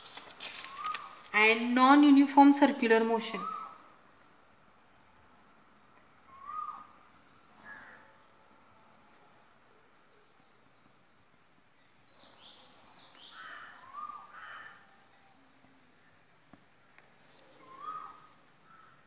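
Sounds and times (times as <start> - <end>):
birds calling: 0.6 - 1.8, 3.1 - 4.5, 6.0 - 8.2, 11.8 - 14.8, 17.2 - 19.0
crows cawing: 7.6 - 8.2, 13.2 - 15.0, 17.6 - 19.0.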